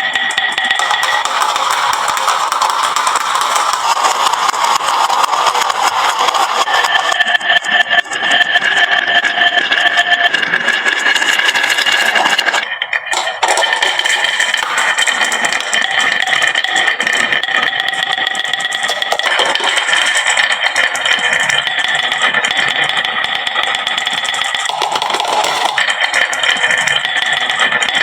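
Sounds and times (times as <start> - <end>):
marbles rattling down wooden run: 0.8 - 5.8, 13.1 - 17.2, 18.1 - 21.0, 24.0 - 27.2.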